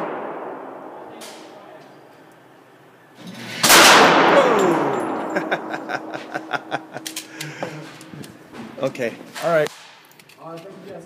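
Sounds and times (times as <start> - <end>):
handgun shot with echo: 3.6 - 5.2.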